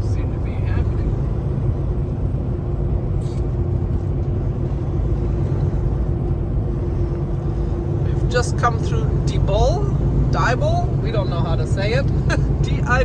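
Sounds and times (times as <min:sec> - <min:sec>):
steady hum: 0:00.0 - 0:13.0
truck engine and road rumble: 0:00.0 - 0:13.0.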